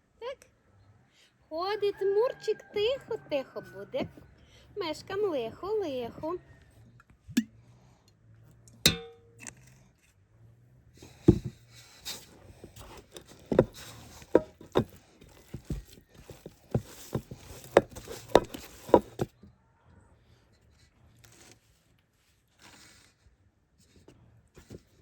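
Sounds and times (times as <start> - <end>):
ringing metallic clink: 8.9 - 9.5
irregular knocks and taps: 11.3 - 11.6, 13.1 - 19.3.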